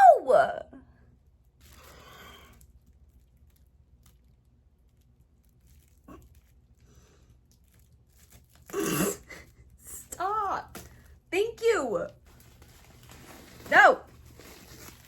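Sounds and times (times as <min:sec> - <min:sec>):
faint bag rustling: 0:12.0 - 0:15.0.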